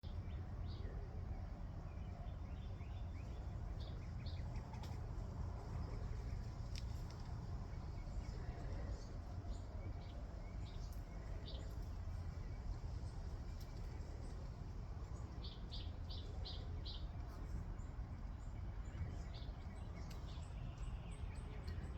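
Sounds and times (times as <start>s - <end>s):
small birds chirping: 2.0s - 21.9s.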